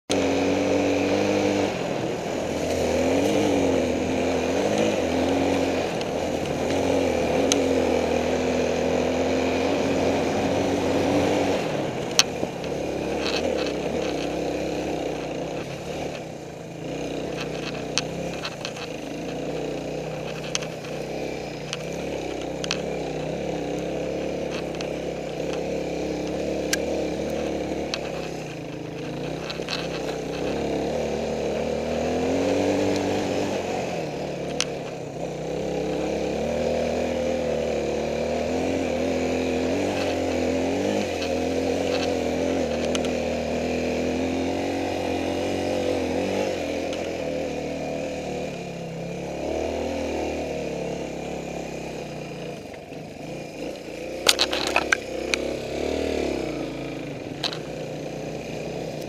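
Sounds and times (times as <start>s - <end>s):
motorcycle engine revving: 0.0s - 59.0s
sharp clicks and knocks: 16.9s - 32.0s, 34.4s - 35.0s, 39.6s - 43.9s, 52.4s - 56.6s, 57.2s - 57.8s.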